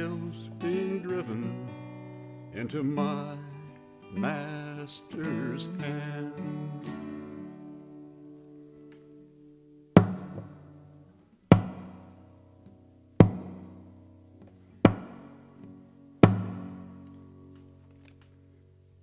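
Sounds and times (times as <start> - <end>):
ringing acoustic guitar chord: 0.0 - 18.9
hard percussive strikes: 10.0 - 10.6, 11.5 - 12.2, 13.2 - 13.8, 14.9 - 15.4, 16.2 - 16.8.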